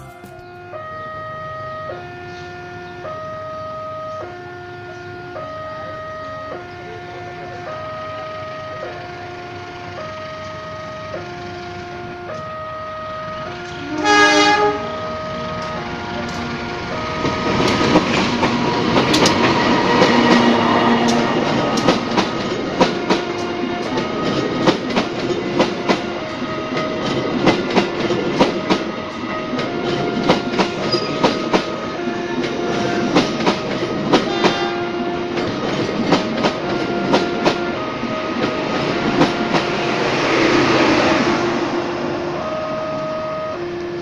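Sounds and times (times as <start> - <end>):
level-crossing warning chime: 0.0 - 11.4, 12.0 - 44.0
train coaches rumbling past: 0.0 - 44.0
wheels clacking over rail joints: 15.3 - 41.1.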